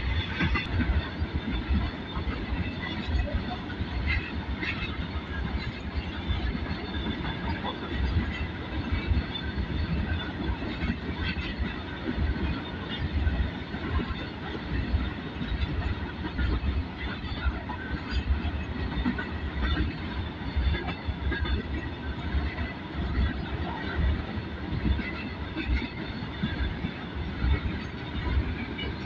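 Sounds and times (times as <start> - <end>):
steel wheels rumbling on rails: 0.0 - 29.0.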